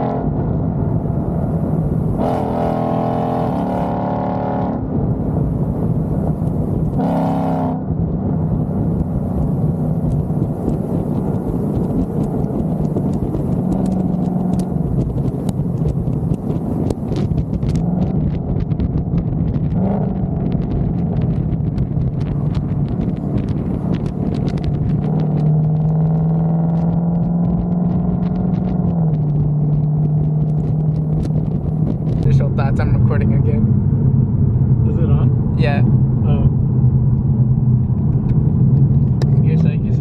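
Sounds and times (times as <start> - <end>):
car engine running: 0.0 - 40.0
road noise: 0.0 - 40.0.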